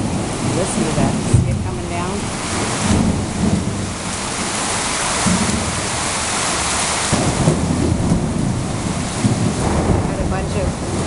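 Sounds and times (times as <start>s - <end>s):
heavy rain pouring: 0.0s - 11.0s
low rumble: 7.1s - 11.0s.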